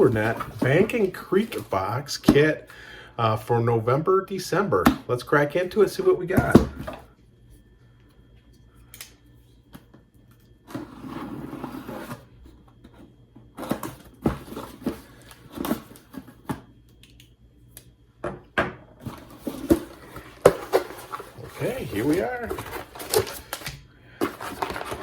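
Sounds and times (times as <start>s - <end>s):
packaging rustling: 0.0s - 2.0s, 19.0s - 25.0s.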